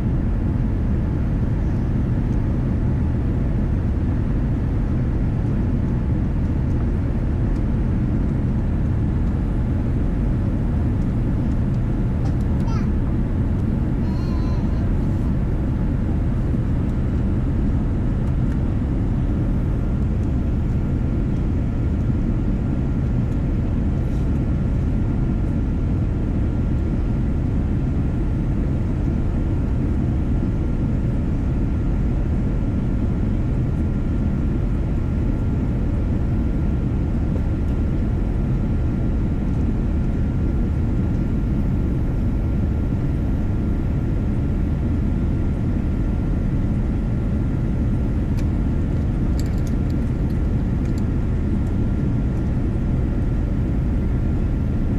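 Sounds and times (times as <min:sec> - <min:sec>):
airliner cabin rumble: 0:00.0 - 0:54.9.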